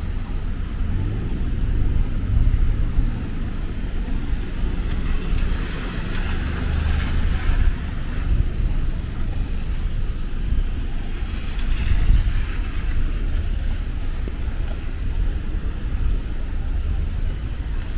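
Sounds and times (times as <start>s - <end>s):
traffic on wet road: 0.0s - 17.9s
tyre hiss of passing vehicle: 0.0s - 17.9s.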